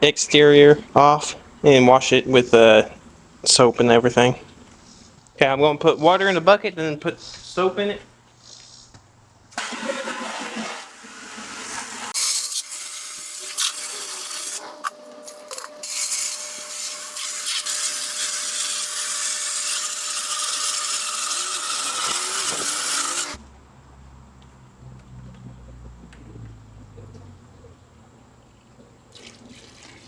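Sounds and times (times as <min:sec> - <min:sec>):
water running into a bucket: 0:09.6 - 0:23.4, 0:29.1 - 0:30.0.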